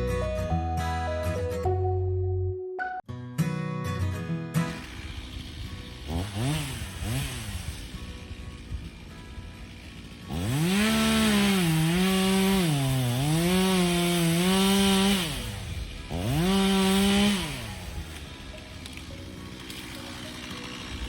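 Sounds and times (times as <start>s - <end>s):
chainsaw revving: 4.6s - 21.0s.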